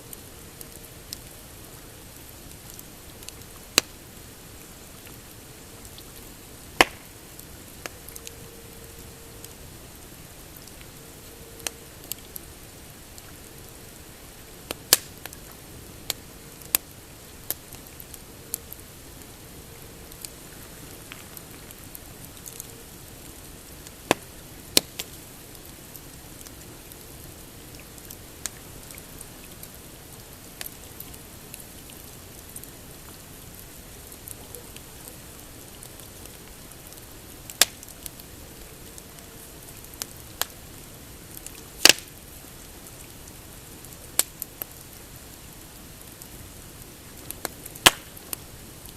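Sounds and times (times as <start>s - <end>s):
campfire crackling and popping: 0.1s - 48.9s.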